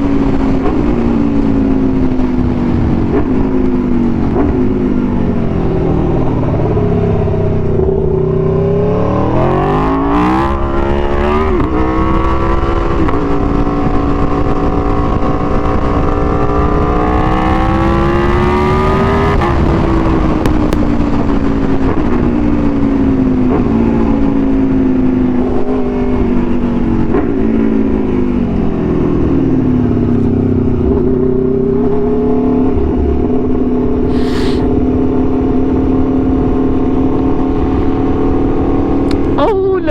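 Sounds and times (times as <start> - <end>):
motorcycle engine accelerating: 0.0 - 39.9
wind rush: 34.0 - 35.0.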